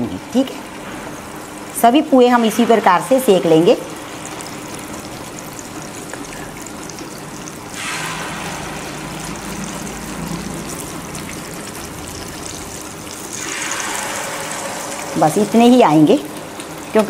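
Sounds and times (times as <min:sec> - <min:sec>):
batter sizzling in hot oil: 0:00.0 - 0:17.0.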